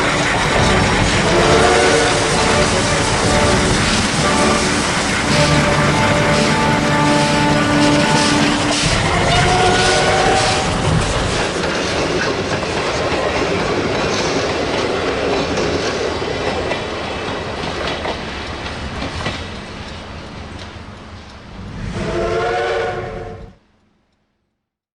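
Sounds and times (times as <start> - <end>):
steam whistle blowing: 0.0 - 11.1, 22.0 - 23.5
steam locomotive exhaust: 0.0 - 12.5
rail clatter: 0.0 - 20.0.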